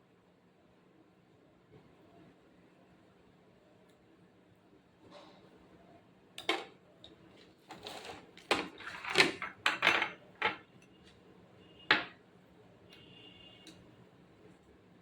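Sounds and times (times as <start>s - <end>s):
kitchen utensils and dishes clattering: 7.7s - 10.7s.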